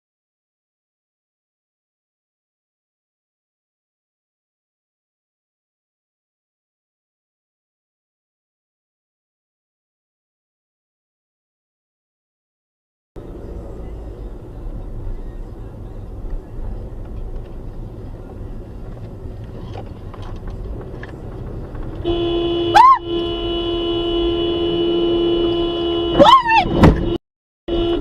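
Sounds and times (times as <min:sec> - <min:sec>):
road and engine noise: 0:13.2 - 0:28.0
car horn held: 0:22.0 - 0:28.0.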